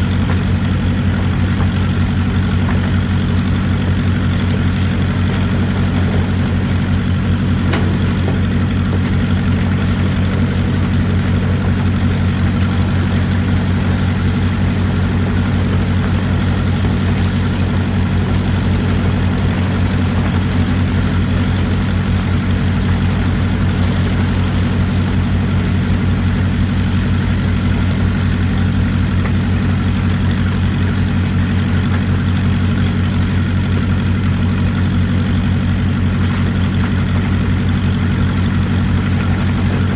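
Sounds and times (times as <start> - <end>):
excavator diesel engine running: 0.0 - 39.9
running water hiss: 0.5 - 30.8.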